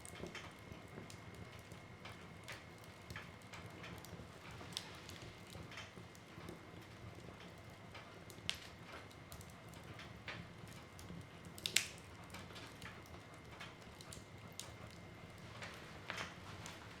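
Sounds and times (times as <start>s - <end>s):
fire rumbling in fireplace: 0.0s - 17.0s
wood crackling and popping: 0.0s - 17.0s.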